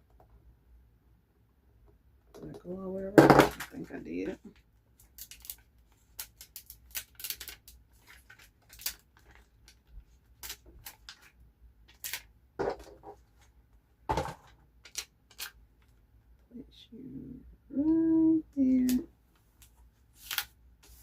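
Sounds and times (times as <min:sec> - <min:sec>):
paper rustles: 0:05.0 - 0:12.2, 0:19.5 - 0:21.0
paper crinkling: 0:05.0 - 0:12.3, 0:19.4 - 0:21.0.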